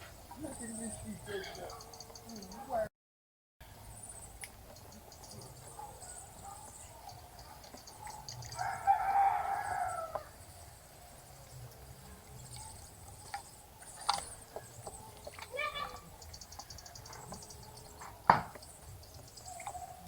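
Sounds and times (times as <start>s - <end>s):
small birds chirping: 0.0s - 2.9s, 3.8s - 20.0s
rooster crowing: 8.6s - 10.4s.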